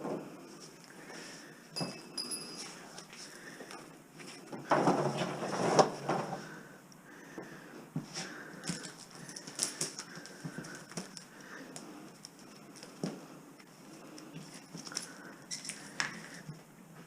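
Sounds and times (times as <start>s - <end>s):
rustling: 8.0s - 17.0s.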